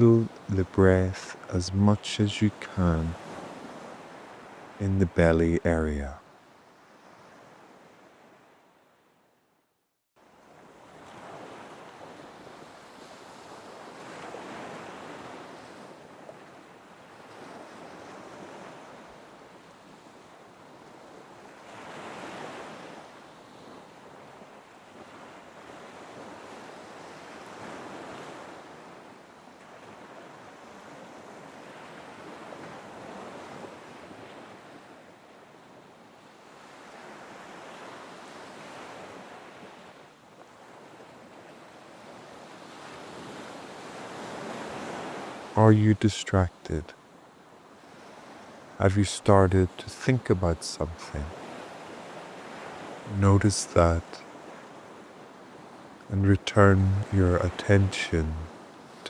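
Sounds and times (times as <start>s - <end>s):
ocean waves washing in: 0.0s - 6.2s.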